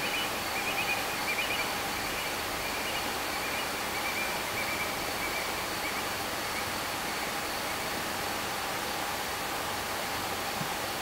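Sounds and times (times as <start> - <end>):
faint chirping: 0.0 - 7.9
steady hiss: 0.0 - 11.0.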